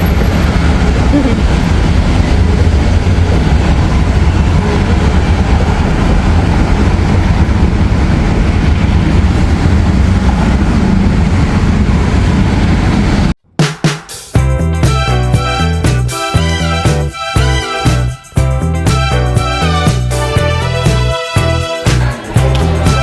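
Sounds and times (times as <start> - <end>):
vehicle low rumble: 0.0 - 13.4.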